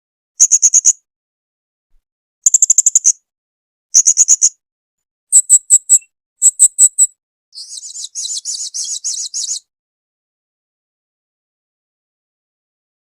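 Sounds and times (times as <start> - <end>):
parrot chattering trill: 5.3 - 7.1
parrot sharp high chirps: 5.3 - 9.6.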